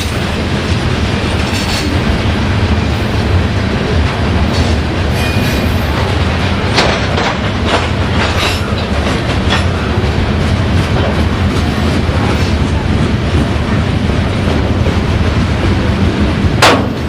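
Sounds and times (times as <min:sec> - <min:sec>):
train rumbling past: 0:00.0 - 0:17.0
wheels clicking over rail joints: 0:04.5 - 0:13.5.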